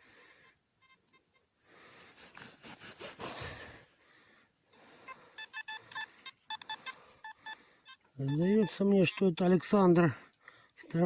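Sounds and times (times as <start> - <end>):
metal detector beeps: 0.4 - 1.5, 5.0 - 10.0
hands rustling through soil: 1.7 - 4.0.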